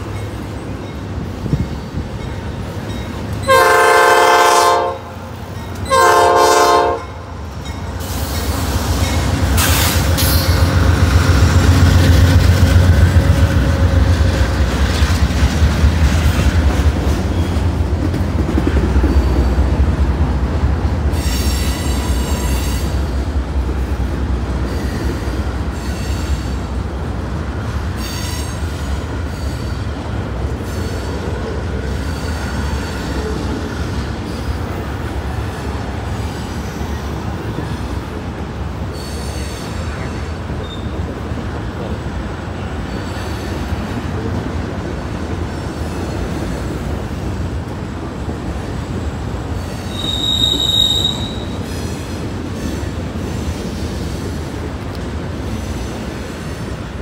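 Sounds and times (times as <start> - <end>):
diesel locomotive rumble: 0.0 - 57.0
wheel squeal: 38.9 - 41.0, 49.6 - 54.1.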